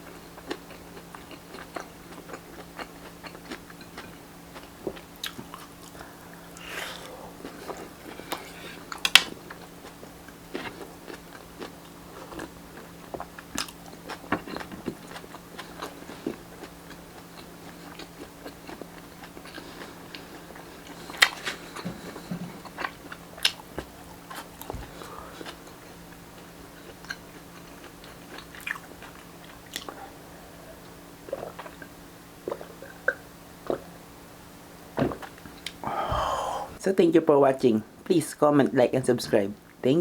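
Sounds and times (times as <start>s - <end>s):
person chewing and biting food: 0.0s - 33.9s
faint steady hum: 0.0s - 40.0s.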